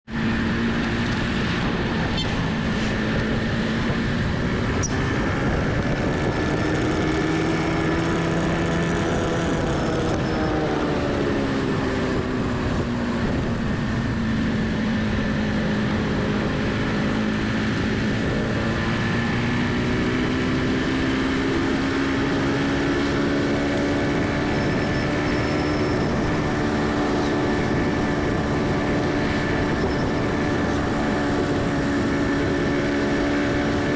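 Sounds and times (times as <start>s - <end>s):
wind and road noise: 0.0s - 33.9s
motorbike engine running: 0.1s - 33.9s.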